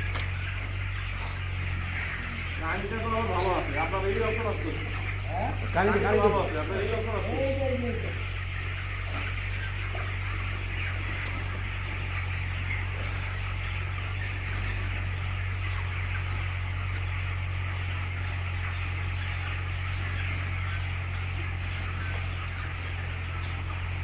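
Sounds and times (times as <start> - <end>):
chickens clucking and cheeping: 0.0 - 24.0.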